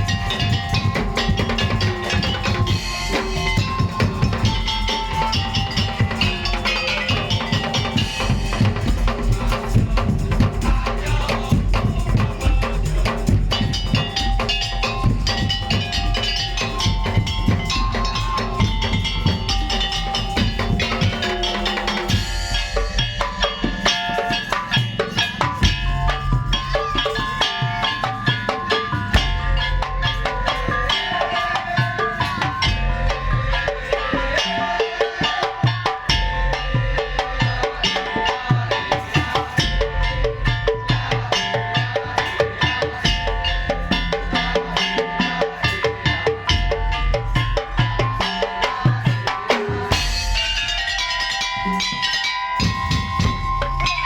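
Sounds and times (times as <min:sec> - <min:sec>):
low drum beat: 0:00.0 - 0:31.2
percussion ensemble playing: 0:00.0 - 0:54.0.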